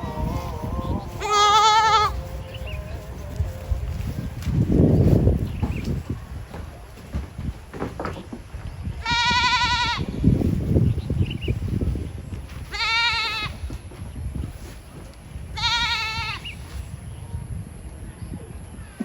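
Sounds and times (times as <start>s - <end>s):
farm animal bleating: 0.0s - 3.4s, 9.0s - 10.2s, 12.6s - 13.7s, 15.5s - 16.7s
low rumbling and thuds: 3.3s - 16.4s.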